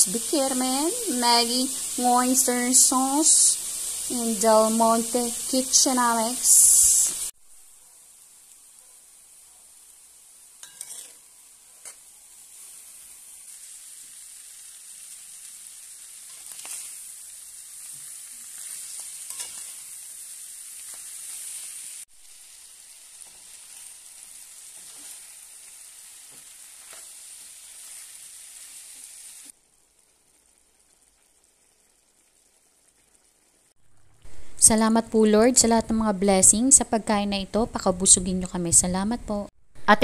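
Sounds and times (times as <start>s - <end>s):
food sizzling in frying pan: 0.0s - 39.2s
metal spatula scraping pan: 10.6s - 12.0s, 18.5s - 20.0s.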